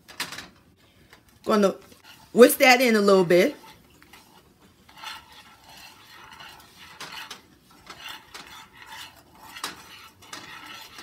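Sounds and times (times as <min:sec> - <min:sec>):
whisk scraping a skillet: 0:01.4 - 0:11.0
whisk clicking against pan: 0:02.0 - 0:11.0.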